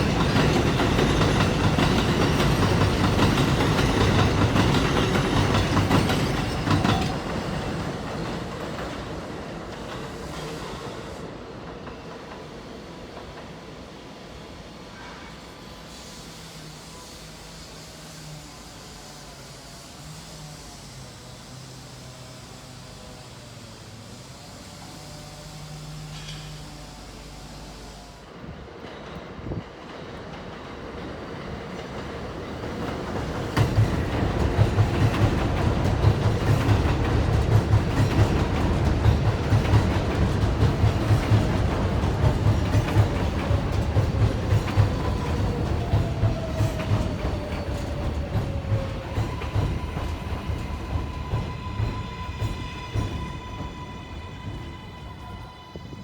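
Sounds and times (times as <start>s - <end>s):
wheels clacking over rail joints: 0.0s - 10.5s, 28.8s - 54.4s
falling train whine: 0.0s - 56.0s
subway train arriving: 0.0s - 56.0s.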